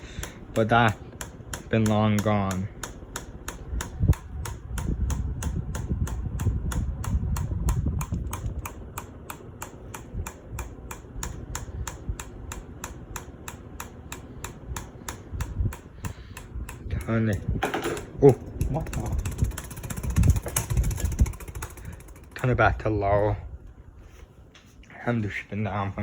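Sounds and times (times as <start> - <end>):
ceiling fan rumbling: 0.0 - 26.0
fan clicking: 0.0 - 26.0.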